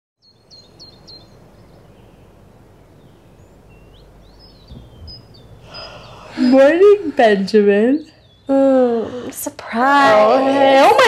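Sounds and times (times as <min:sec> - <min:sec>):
bird chirping: 0:00.2 - 0:09.3
low steady hum: 0:00.2 - 0:11.0
soft low bump: 0:04.6 - 0:05.6.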